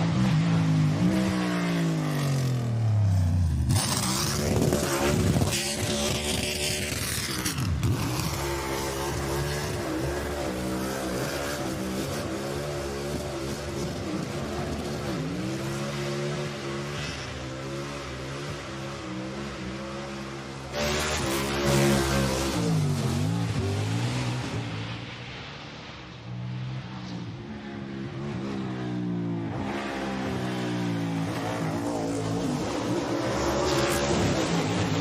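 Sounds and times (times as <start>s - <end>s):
racing car engines: 0.0s - 35.0s.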